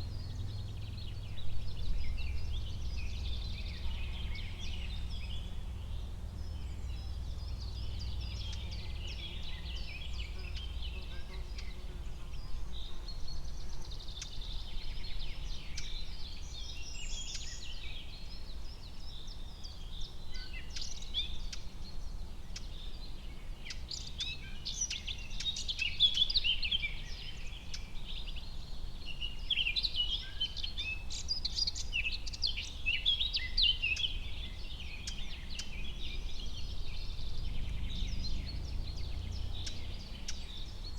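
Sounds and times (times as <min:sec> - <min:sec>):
small birds chirping and singing: 0:00.0 - 0:40.9
steady low rumble: 0:35.5 - 0:40.8.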